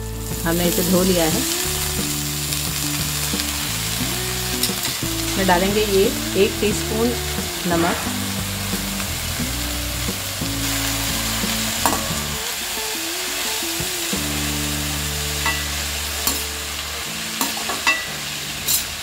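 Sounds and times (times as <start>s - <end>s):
leaves sizzling in oil: 0.0s - 19.0s
metal spoon clicking on pan: 16.3s - 16.5s.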